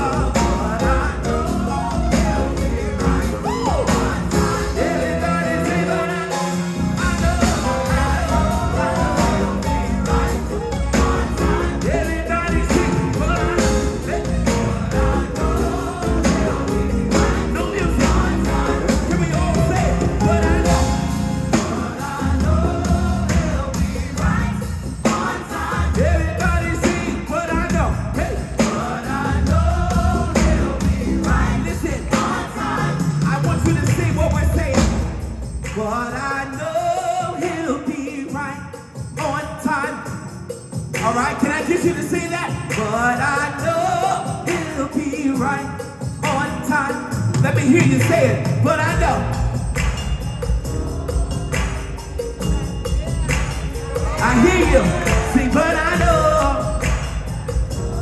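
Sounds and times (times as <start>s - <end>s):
bass and drums: 0.0s - 5.7s, 6.6s - 35.7s, 47.1s - 58.0s
choir singing: 0.0s - 35.2s, 48.9s - 58.0s.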